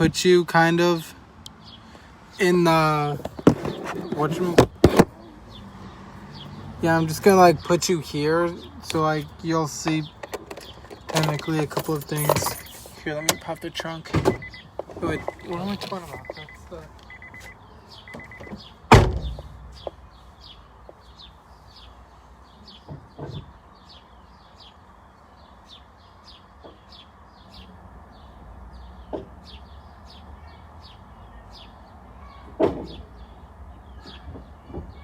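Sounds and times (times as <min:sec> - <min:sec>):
bird chirping: 0:01.0 - 0:35.0
car door slamming: 0:03.2 - 0:05.2, 0:11.0 - 0:16.6, 0:18.1 - 0:19.9
car chime beeping: 0:11.1 - 0:18.6.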